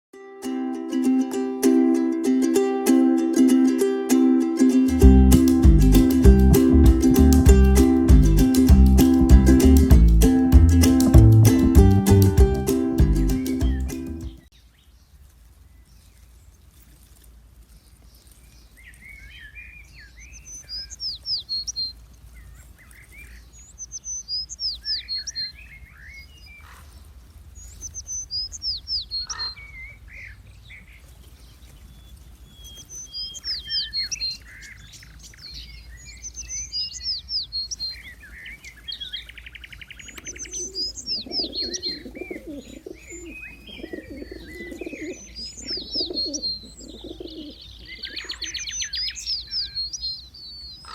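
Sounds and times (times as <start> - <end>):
songbirds singing: 5.8 - 50.9
lower bird chirps: 18.2 - 50.9
dove cooing: 40.2 - 48.6.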